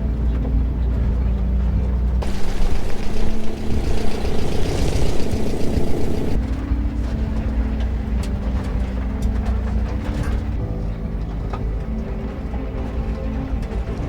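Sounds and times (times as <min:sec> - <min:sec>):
engine drone with hiss: 0:02.2 - 0:06.4
light clicks and rattles: 0:02.2 - 0:06.4
engine hum: 0:02.2 - 0:06.5.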